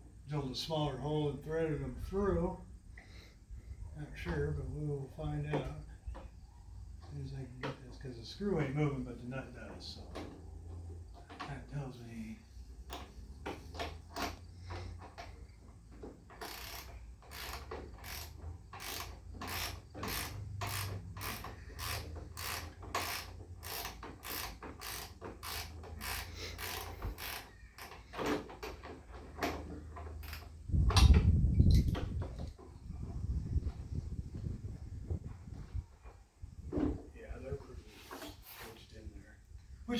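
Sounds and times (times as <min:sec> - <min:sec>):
ratchet wrench clicking: 0:16.4 - 0:28.1, 0:30.1 - 0:32.0.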